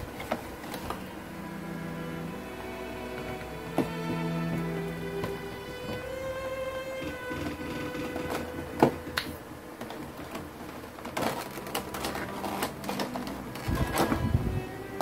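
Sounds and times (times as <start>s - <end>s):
low rumbling handling noise: 3.0s - 14.7s.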